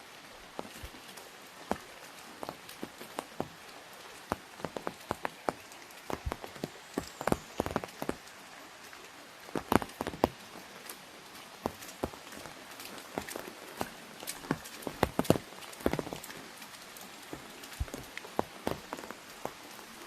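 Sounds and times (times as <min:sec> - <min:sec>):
light hiss of rain: 0:00.0 - 0:20.0
raindrops tapping on umbrella: 0:00.0 - 0:20.0.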